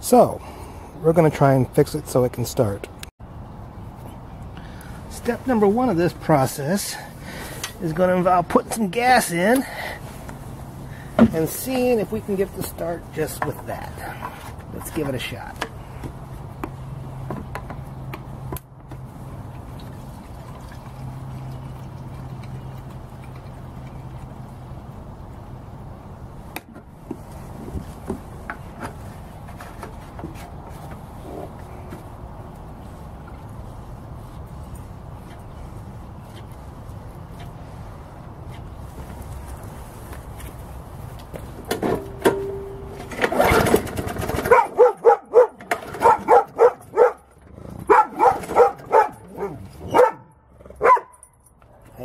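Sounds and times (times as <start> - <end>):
dog barking: 44.5 - 47.2, 47.9 - 51.1.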